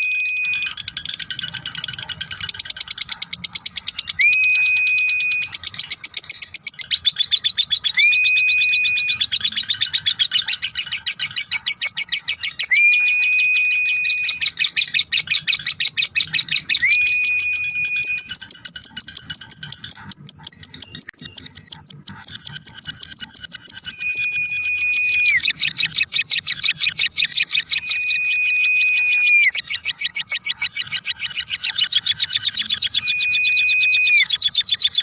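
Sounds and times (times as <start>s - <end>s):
lovebird chattering trill: 0.0s - 35.0s.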